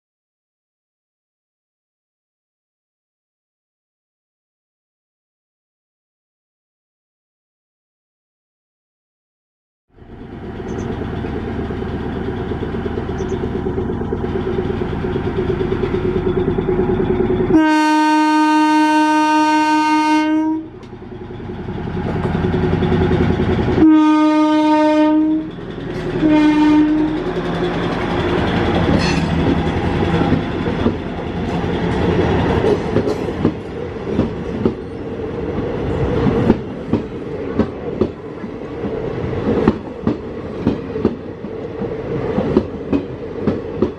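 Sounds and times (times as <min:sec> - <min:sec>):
train engine running: 0:09.9 - 0:43.9
train horn blasts: 0:17.5 - 0:20.8, 0:23.8 - 0:25.5, 0:26.1 - 0:27.3.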